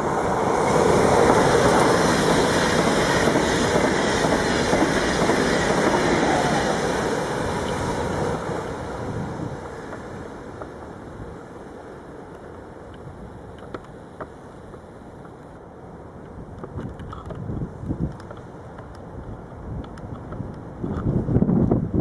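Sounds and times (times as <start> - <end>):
train passing: 0.0 - 16.8.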